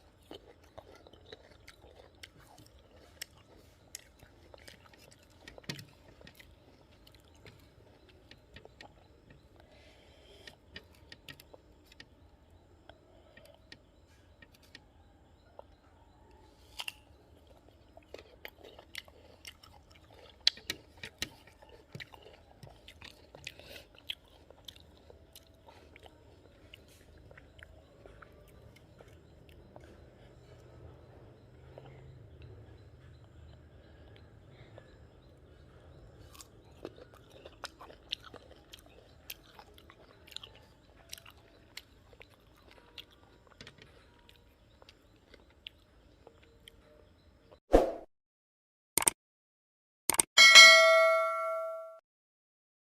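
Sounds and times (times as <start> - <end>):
person chewing crunchy fruit: 0.0 - 47.6.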